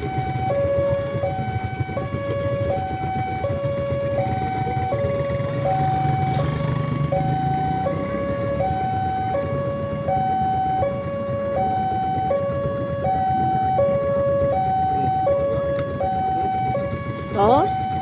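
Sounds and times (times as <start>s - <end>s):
two-tone crossing alarm: 0.0s - 18.0s.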